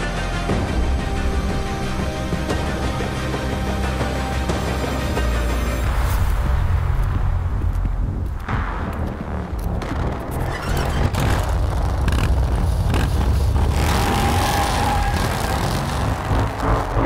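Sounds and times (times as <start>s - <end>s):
motorcycle engine running: 10.6s - 17.0s.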